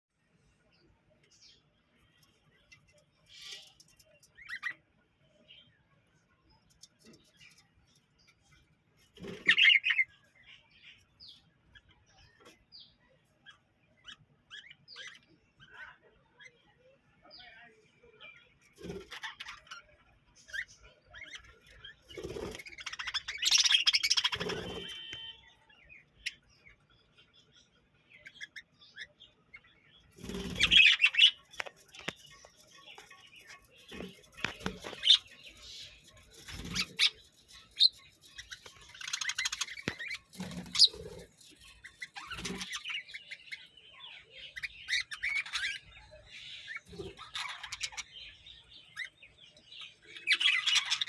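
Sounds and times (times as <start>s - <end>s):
budgerigars chirping and chattering: 2.5s - 4.9s, 6.5s - 51.0s
wing flapping: 33.0s - 41.4s.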